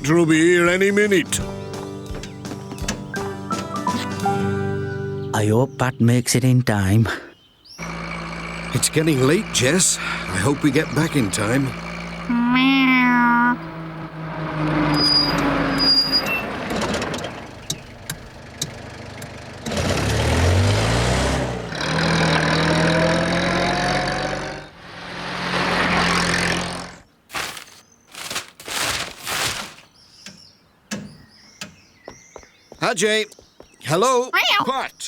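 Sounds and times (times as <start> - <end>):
cartoon engine revving: 7.8 - 15.0.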